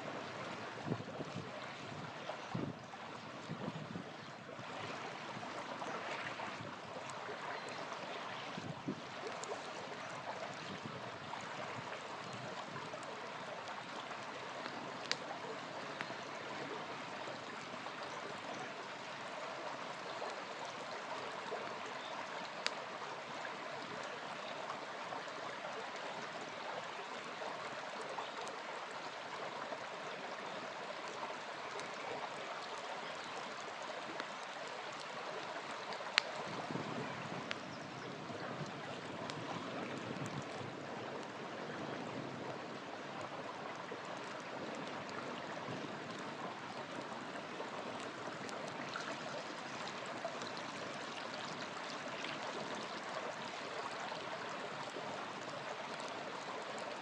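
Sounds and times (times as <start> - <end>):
river flowing: 0.0 - 57.0
campfire crackling pops: 11.4 - 16.4, 34.1 - 37.7.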